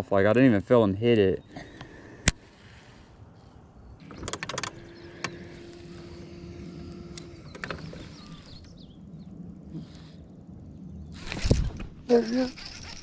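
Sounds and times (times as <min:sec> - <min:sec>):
small electric motor humming: 0:04.0 - 0:08.9, 0:11.2 - 0:13.0
gear clicking and knocking: 0:11.2 - 0:13.0.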